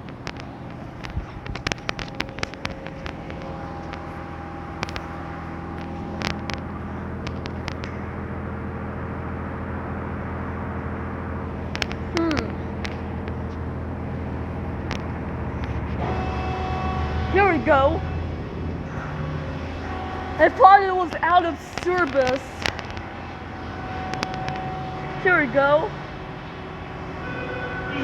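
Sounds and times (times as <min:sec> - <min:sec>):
sharp clicks: 0:00.0 - 0:08.0, 0:11.6 - 0:16.0, 0:19.8 - 0:23.1, 0:23.9 - 0:24.7
machinery hum: 0:00.0 - 0:28.0.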